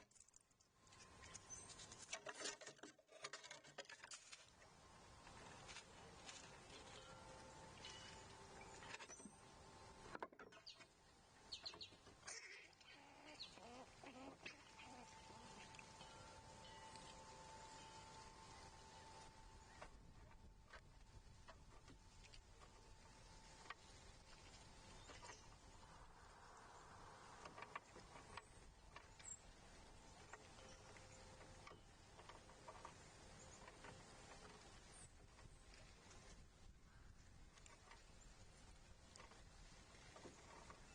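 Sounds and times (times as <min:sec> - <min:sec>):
faint outdoor hiss: 0:00.0 - 0:40.9
faint steady hum: 0:04.2 - 0:40.9
wild bird calls: 0:10.5 - 0:20.0.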